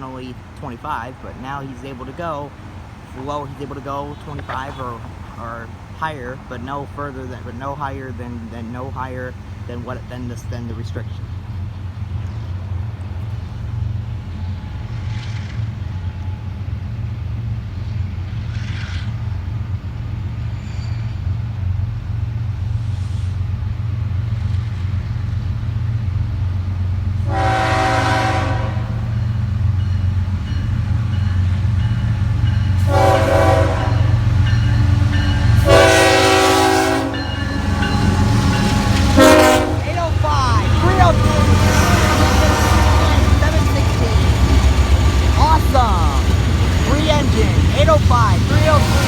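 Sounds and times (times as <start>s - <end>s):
diesel locomotives rumbling: 0.0s - 49.0s
train air horn blasts: 27.2s - 29.2s, 32.7s - 44.3s.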